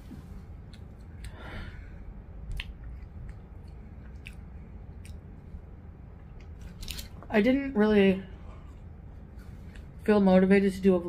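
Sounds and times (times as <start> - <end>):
person chewing crisps: 2.4 - 5.3, 6.4 - 7.2
sharp mouth clicks: 2.5 - 5.2.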